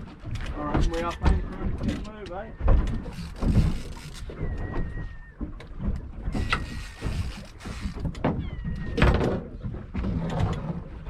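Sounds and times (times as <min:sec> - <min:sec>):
wind and water against hull: 0:00.0 - 0:11.0
faint high-pitched whistles: 0:04.3 - 0:05.4.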